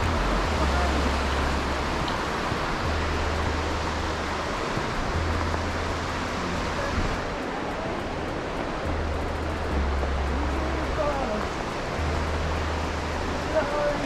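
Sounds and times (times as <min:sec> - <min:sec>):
low rumble: 0:00.0 - 0:14.0
steady rushing noise: 0:00.0 - 0:14.0.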